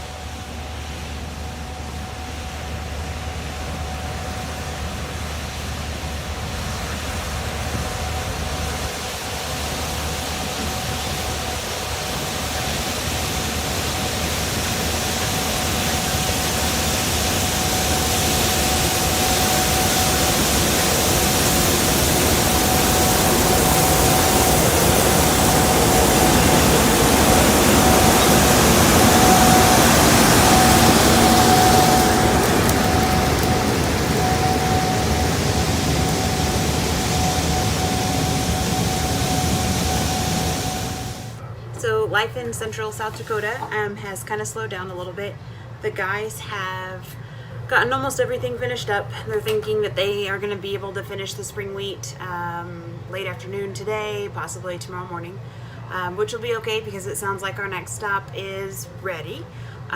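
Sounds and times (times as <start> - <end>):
machine with high whine: 0.0 - 41.9.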